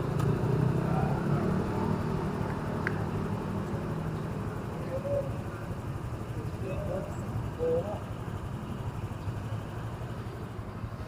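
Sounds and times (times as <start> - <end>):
street traffic: 0.0 - 11.0
vehicle engine humming: 0.0 - 11.0.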